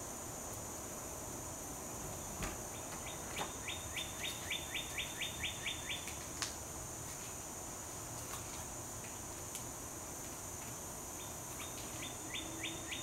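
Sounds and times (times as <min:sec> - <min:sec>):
high-pitched insect drone: 0:11.1 - 0:13.0.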